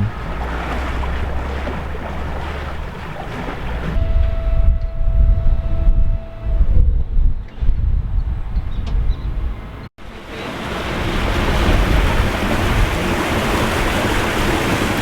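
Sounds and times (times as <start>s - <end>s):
wind buffeting microphone: 0.0s - 15.0s
low steady hum: 4.0s - 7.4s.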